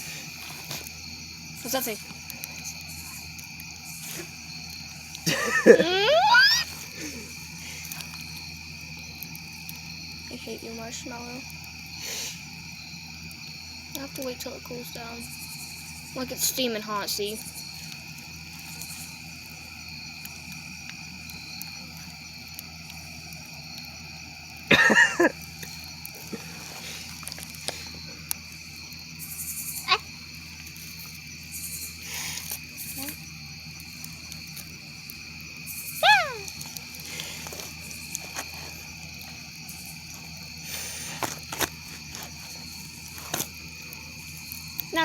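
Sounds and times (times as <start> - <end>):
crickets trilling: 0.0 - 45.0.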